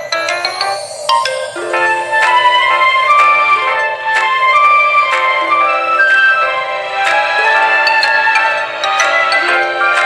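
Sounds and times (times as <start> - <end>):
background music with light percussion: 0.0 - 10.0.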